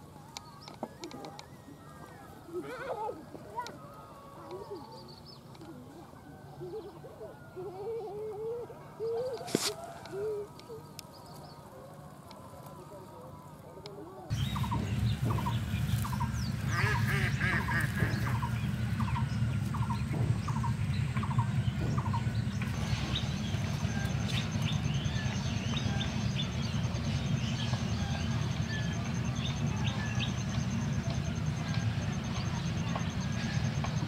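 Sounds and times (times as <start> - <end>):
low rumble: 14.3 - 33.8
higher bird chirps: 14.3 - 33.9.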